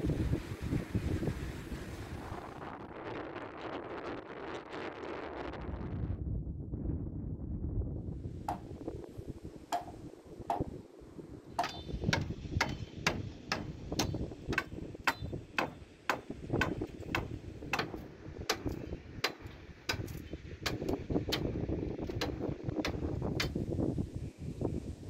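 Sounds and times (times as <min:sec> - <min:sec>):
hammer blows driving nails: 0:08.5 - 0:08.8, 0:09.7 - 0:10.8, 0:11.6 - 0:23.6.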